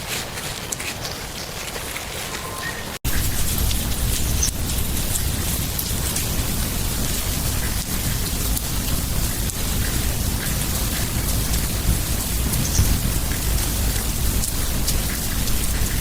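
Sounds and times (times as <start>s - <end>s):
tiny crackles: 0.0s - 6.4s
steady outdoor hiss: 0.0s - 16.0s.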